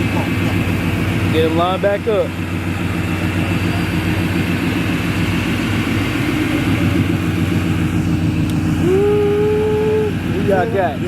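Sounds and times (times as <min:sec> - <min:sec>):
car engines idling unevenly: 0:00.0 - 0:11.0.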